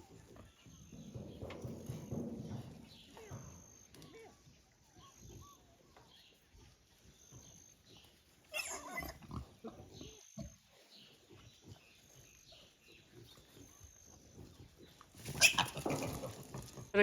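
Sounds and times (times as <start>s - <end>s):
pig high-pitched call: 8.5s - 9.4s, 15.4s - 16.1s
pigs grunting: 8.5s - 16.8s.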